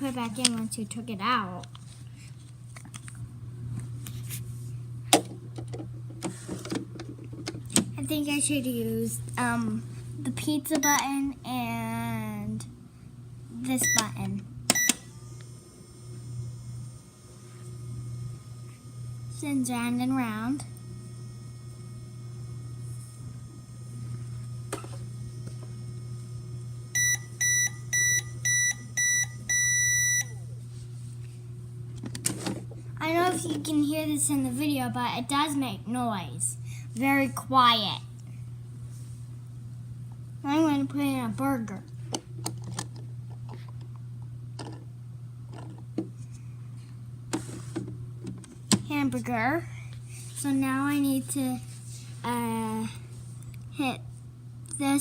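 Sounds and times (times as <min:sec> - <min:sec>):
turntable motor hum: 0:00.0 - 0:55.0
toy microwave beeps: 0:10.8 - 0:11.1, 0:13.8 - 0:15.0, 0:26.9 - 0:30.4.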